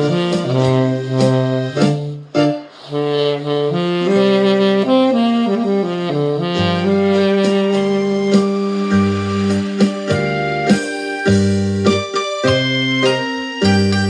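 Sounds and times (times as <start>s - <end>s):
saxophone melody: 0.0s - 13.8s
musical accompaniment: 0.0s - 14.0s.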